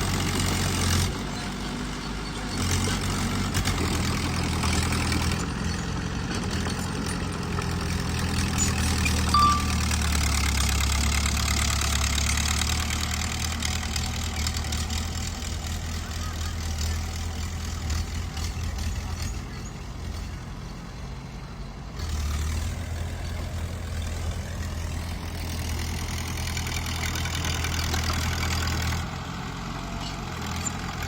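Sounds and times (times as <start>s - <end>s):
heavy machinery diesel engine: 0.0s - 31.0s
high squeak: 8.6s - 10.0s.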